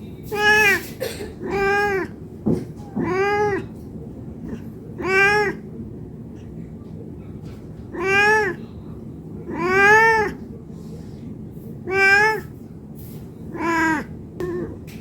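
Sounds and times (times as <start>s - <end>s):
cat meowing: 0.3s - 2.2s, 2.8s - 3.8s, 4.4s - 5.7s, 7.9s - 8.6s, 9.5s - 10.4s, 11.8s - 12.5s, 13.5s - 14.8s.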